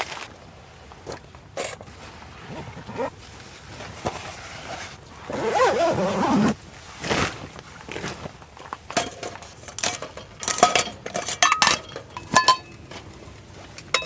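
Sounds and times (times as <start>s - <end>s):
knocks and rustles of gear: 3.7s - 14.0s.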